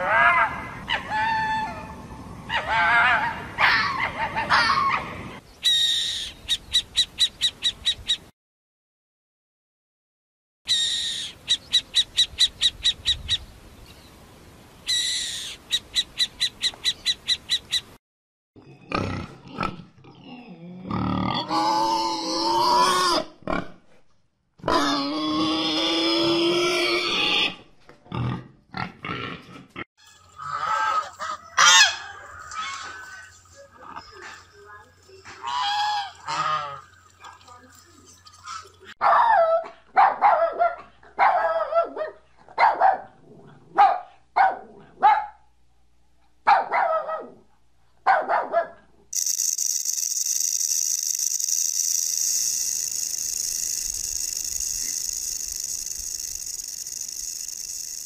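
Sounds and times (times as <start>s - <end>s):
owl calling: 10.7s - 13.4s
pigs grunting: 18.6s - 23.8s, 24.6s - 29.8s
geese honking: 30.4s - 33.3s, 35.4s - 37.0s.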